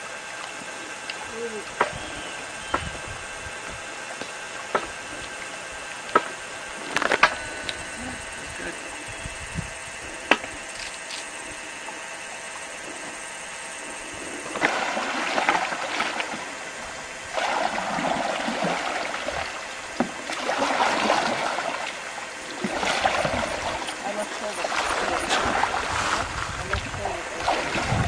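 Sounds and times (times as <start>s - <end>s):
water splashing and rushing: 14.4s - 28.0s.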